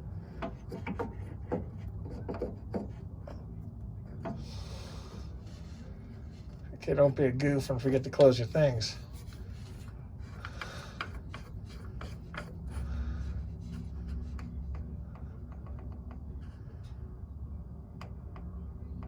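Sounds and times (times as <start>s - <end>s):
rubbing and scraping: 0.0s - 14.8s.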